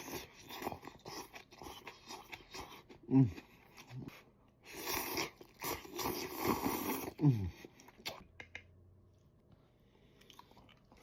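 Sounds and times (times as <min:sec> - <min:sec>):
person slurping noodles: 0:04.7 - 0:07.5
mouth clicks of chewing: 0:07.9 - 0:08.7.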